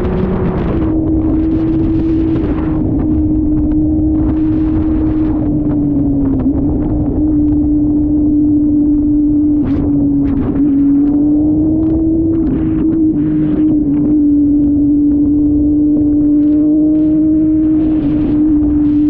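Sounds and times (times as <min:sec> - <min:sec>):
low rumble: 0:00.0 - 0:19.0
motorcycle engine running: 0:00.0 - 0:19.0.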